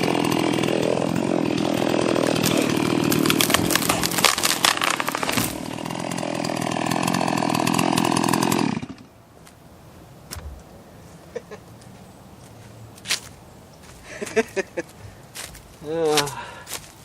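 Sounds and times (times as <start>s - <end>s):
chainsaw cutting into tree: 0.0s - 9.1s.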